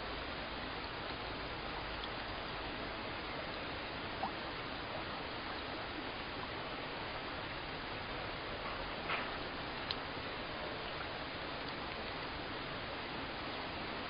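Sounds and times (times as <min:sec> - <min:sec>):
steady rain hiss: 0:00.0 - 0:14.0
faint drop ticks: 0:08.7 - 0:10.0.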